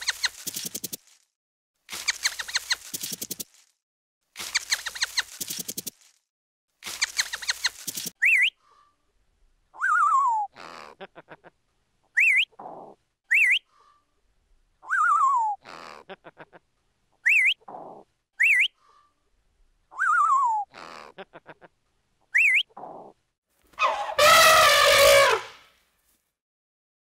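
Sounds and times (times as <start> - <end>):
parrot whistles and calls: 9.8 - 10.5, 13.3 - 13.6, 14.8 - 15.6, 18.4 - 18.7, 19.9 - 20.7, 22.4 - 22.7.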